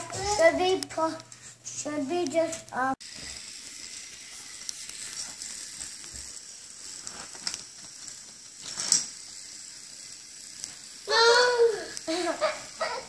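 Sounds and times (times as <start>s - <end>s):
toy train track pieces clicking: 2.5s - 13.0s.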